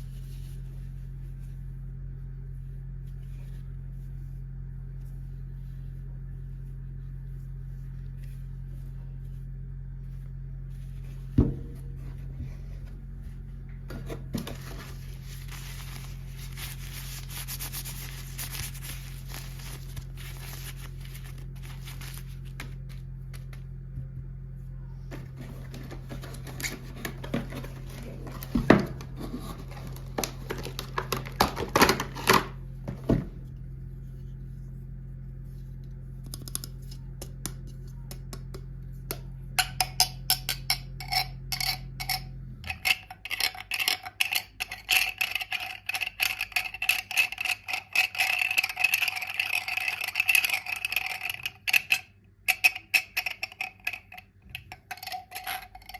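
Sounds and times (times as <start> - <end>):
low hum: 0.0 - 43.0
plastic packaging crinkling: 14.5 - 23.6, 25.2 - 32.5.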